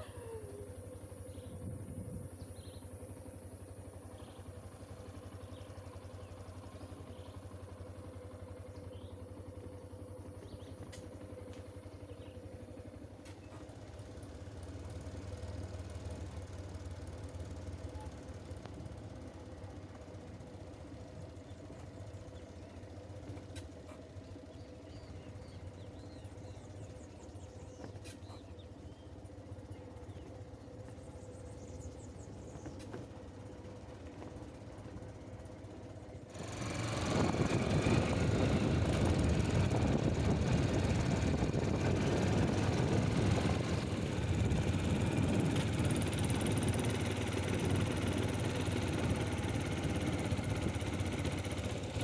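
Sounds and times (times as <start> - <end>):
engine humming steadily: 0.0 - 52.0.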